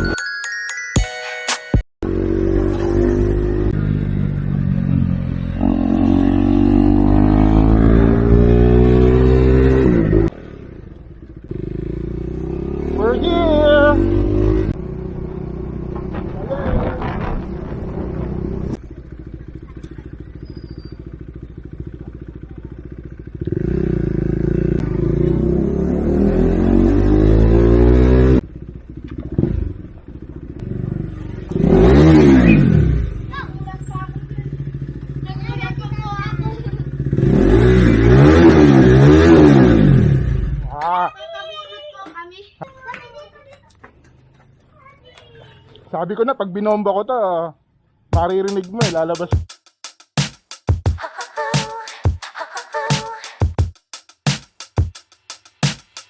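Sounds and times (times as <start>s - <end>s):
motorcycle engine revving: 2.0s - 40.8s.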